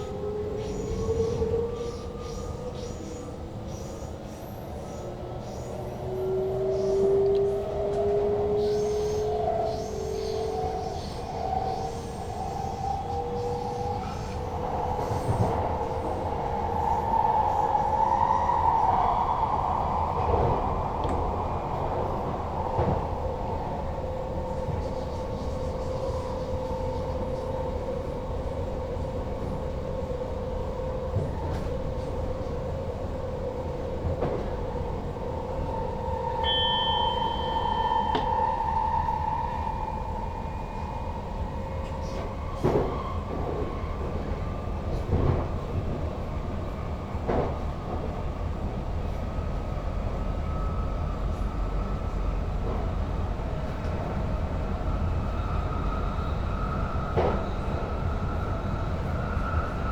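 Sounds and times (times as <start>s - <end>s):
electric train whine: 0.0s - 59.9s
high beep: 36.4s - 38.4s.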